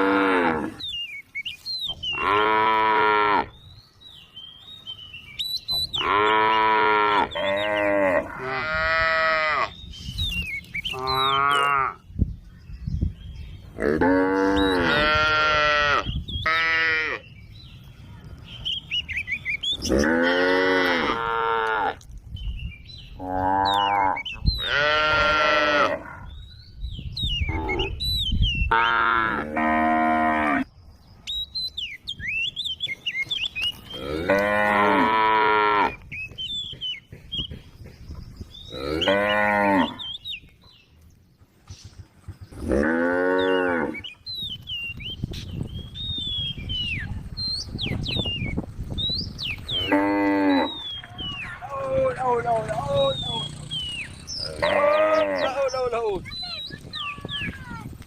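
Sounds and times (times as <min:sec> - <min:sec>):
cattle mooing: 0:00.0 - 0:00.8, 0:13.8 - 0:17.2, 0:19.8 - 0:22.0, 0:23.2 - 0:26.2, 0:33.9 - 0:36.0, 0:38.7 - 0:40.0, 0:54.4 - 0:55.6.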